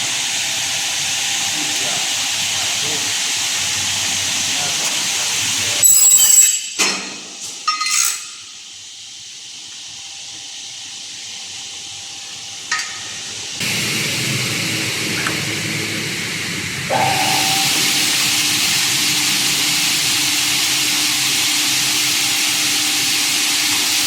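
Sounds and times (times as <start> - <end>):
machine hissing: 13.6 - 24.0
saw cutting burst with ringing: 16.9 - 19.2.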